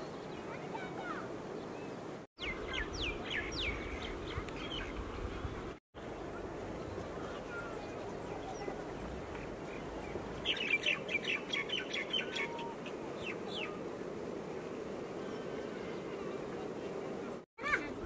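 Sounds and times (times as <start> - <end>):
outdoor background noise: 0.0 - 18.0
bird chirping: 1.5 - 13.8.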